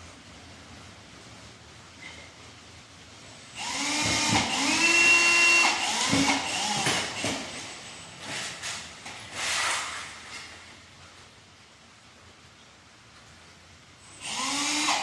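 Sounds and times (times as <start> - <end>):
power drill motor: 3.6 - 7.6, 14.1 - 15.0.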